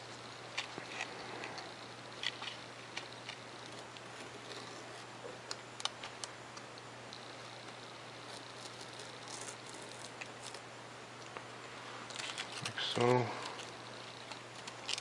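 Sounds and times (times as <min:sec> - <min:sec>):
steady low hum: 0:00.0 - 0:15.0
knife cutting foam: 0:08.2 - 0:10.6.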